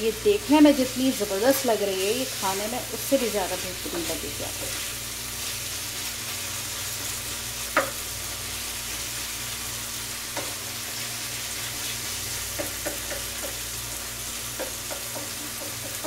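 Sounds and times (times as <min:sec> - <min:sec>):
food sizzling on a griddle: 0:00.0 - 0:16.0
wooden spatula scraping a griddle: 0:01.5 - 0:09.3.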